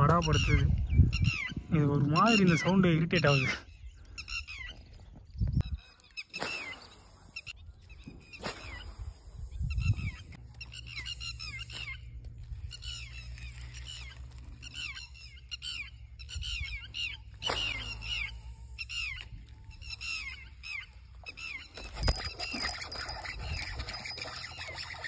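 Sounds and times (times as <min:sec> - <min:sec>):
bird calling sharp falling notes: 0:17.1 - 0:25.0.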